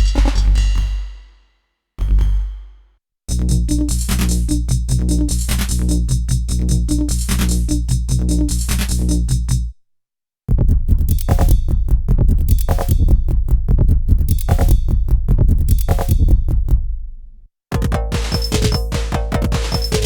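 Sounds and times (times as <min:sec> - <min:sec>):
electronic drum groove: 0:00.0 - 0:01.2, 0:10.7 - 0:16.8, 0:17.7 - 0:20.0.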